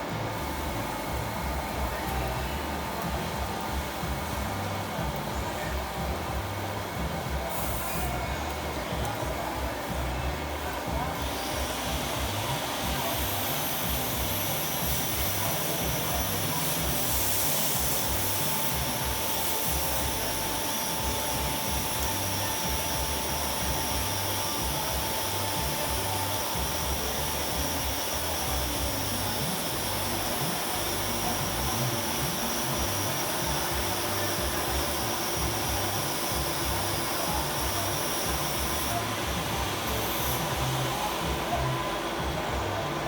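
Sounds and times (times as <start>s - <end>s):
lathe motor whirring: 10.1s - 43.0s.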